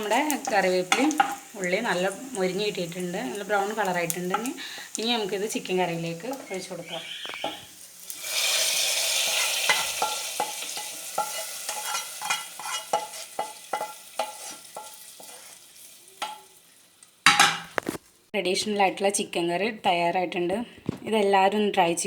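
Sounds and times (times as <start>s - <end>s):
spoon tapping and scraping: 0.0s - 1.6s, 4.2s - 4.6s, 6.3s - 7.7s, 9.3s - 15.6s, 16.2s - 16.5s
hot oil sizzling: 0.0s - 18.3s.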